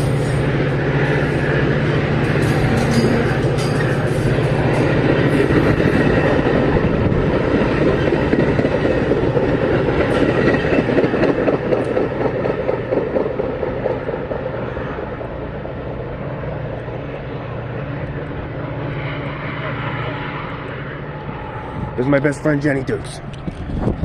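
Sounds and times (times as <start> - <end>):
train wheels clattering on rails: 0.0 - 15.3.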